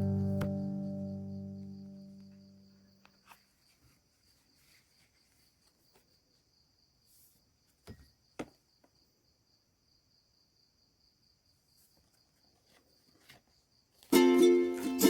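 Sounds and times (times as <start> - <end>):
faint high-pitched hum: 0.0 - 3.6.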